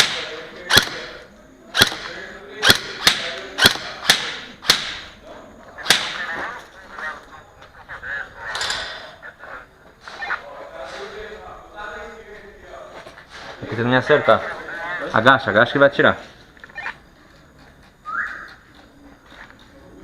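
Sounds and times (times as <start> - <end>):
airsoft gun shots: 0.0 - 5.2, 5.8 - 6.3.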